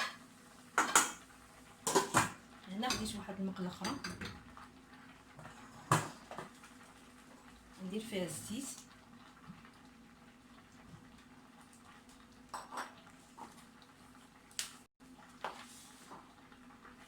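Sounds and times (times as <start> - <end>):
frying pan and utensils clinking: 0.0 - 0.2, 0.8 - 1.2, 1.8 - 3.2, 12.5 - 13.0.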